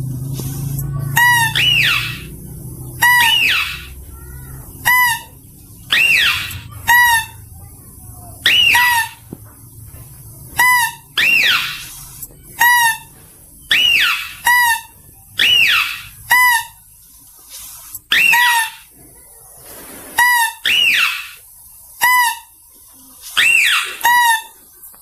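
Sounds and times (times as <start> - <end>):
high-pitched mouse-deer calls: 1.1 - 2.4, 3.0 - 7.4, 8.4 - 9.3, 10.6 - 13.1, 13.7 - 16.9, 18.1 - 18.9, 20.2 - 21.4, 23.3 - 24.7.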